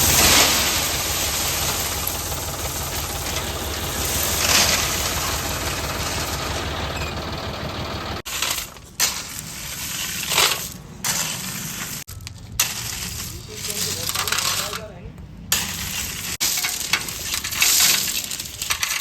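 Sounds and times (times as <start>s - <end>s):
short noisy bursts: 0.0s - 8.2s
tractor engine running: 0.0s - 9.0s.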